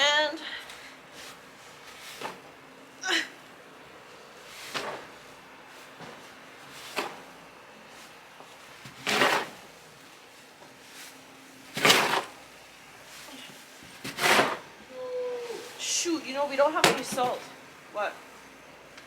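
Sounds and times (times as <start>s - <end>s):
snow shovel scraping: 8.9s - 9.7s, 10.9s - 12.5s, 13.9s - 14.6s.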